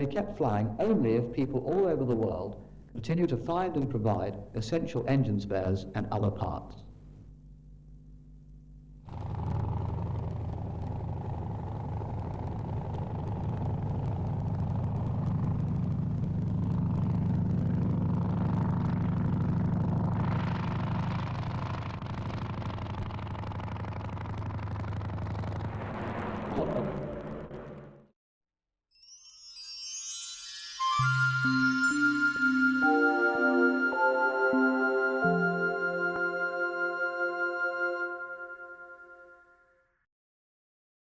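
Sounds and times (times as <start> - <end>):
piston aero engine passing: 9.1 - 27.9.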